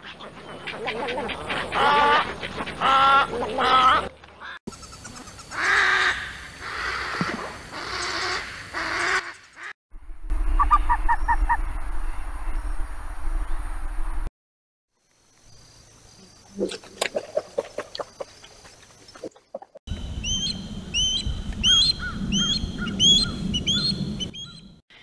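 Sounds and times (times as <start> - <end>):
egrets croaking: 0.0 - 9.7
steady low rumble: 19.9 - 24.4.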